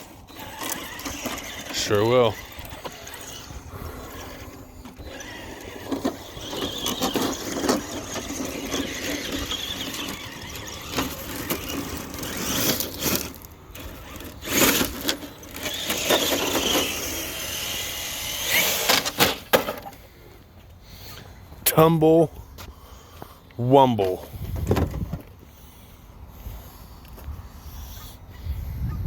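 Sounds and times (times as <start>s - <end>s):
toy truck motor whining: 0.0s - 20.0s.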